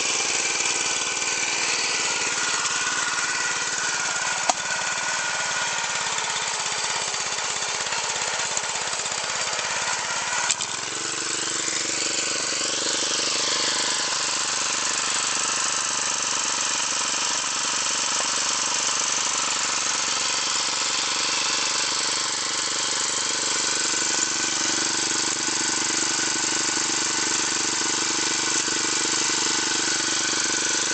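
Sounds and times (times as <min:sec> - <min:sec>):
riding mower engine running: 0:00.0 - 0:30.9
click: 0:04.4 - 0:04.7, 0:10.4 - 0:10.7.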